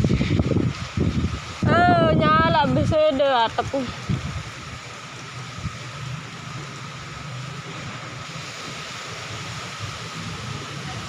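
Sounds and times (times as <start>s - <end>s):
strong wind blowing: 0.0s - 11.0s
wind buffeting microphone: 0.0s - 11.0s.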